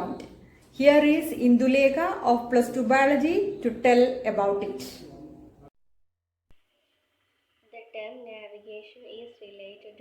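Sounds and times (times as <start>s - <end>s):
voice: 0.0s - 5.6s, 7.7s - 10.0s
faint hiss: 6.7s - 10.0s.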